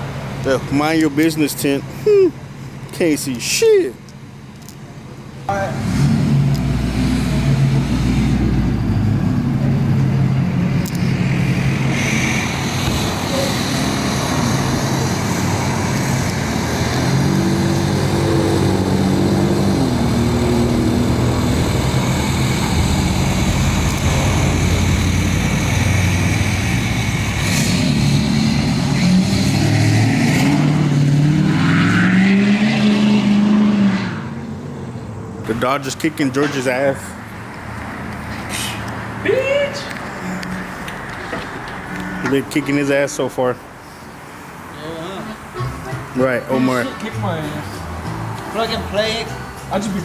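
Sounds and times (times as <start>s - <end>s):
vehicle engine running: 4.0s - 31.2s
steady background noise: 34.2s - 50.0s.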